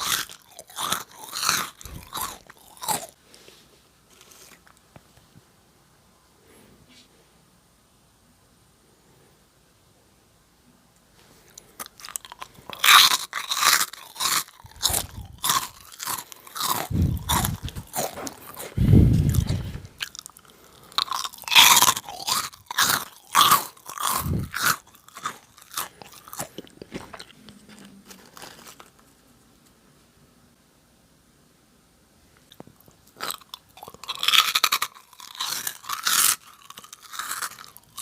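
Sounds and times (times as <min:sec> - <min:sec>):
chewing: 0:00.0 - 0:03.2, 0:11.4 - 0:29.1, 0:32.5 - 0:38.0
crunching snack crackers: 0:00.0 - 0:03.2, 0:04.1 - 0:05.0, 0:11.4 - 0:29.2, 0:32.5 - 0:38.0.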